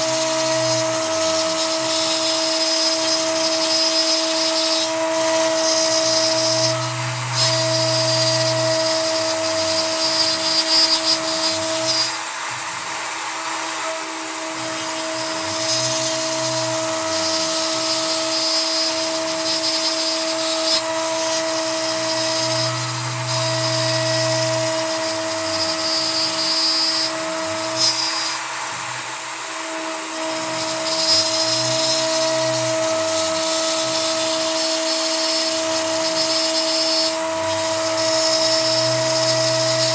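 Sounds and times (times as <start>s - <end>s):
spindle high whine: 0.0s - 39.9s
end mill cutting wood: 3.8s - 11.5s, 20.4s - 27.8s, 29.7s - 39.9s
low machine hum: 4.4s - 11.4s, 21.2s - 26.3s, 30.3s - 35.1s, 35.7s - 39.9s.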